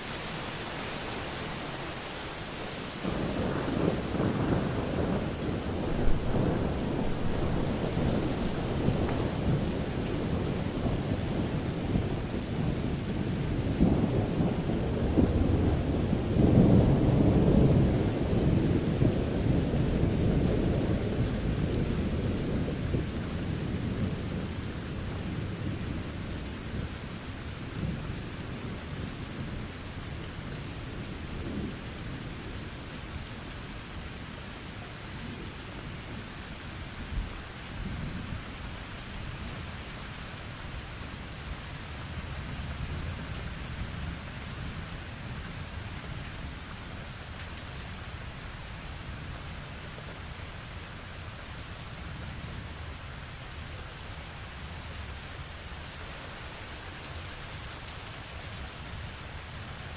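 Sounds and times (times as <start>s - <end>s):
steady rain: 0.0s - 59.9s
thunder rolling: 3.0s - 26.0s.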